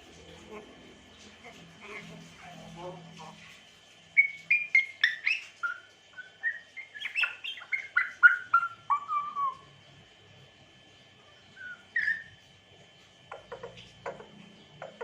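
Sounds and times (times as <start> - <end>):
parrot whistling chirped notes: 4.2 - 9.8, 11.5 - 12.4.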